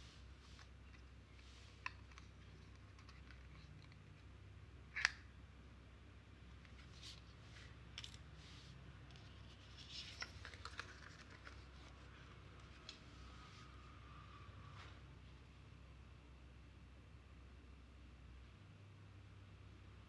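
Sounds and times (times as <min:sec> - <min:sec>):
packaging rustling: 0:09.1 - 0:12.8.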